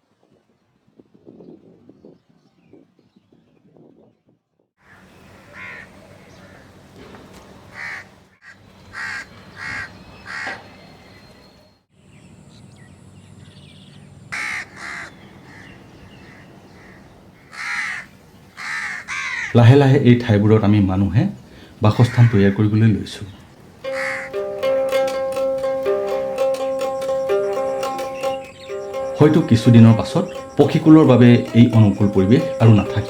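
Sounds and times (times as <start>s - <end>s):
crows cawing: 4.8s - 6.8s, 7.7s - 10.7s, 14.3s - 19.6s, 22.0s - 22.6s, 23.9s - 24.6s.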